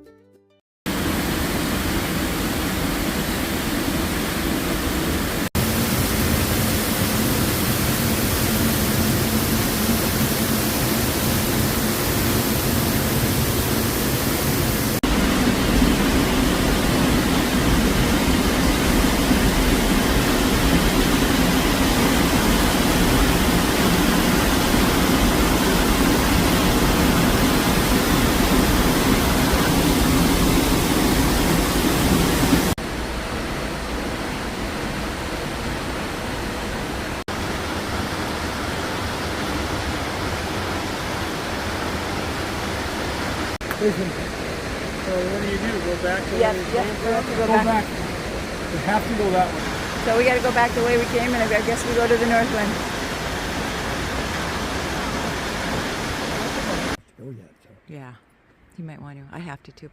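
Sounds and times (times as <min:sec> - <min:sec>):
waterfall roaring: 0:00.9 - 0:57.0.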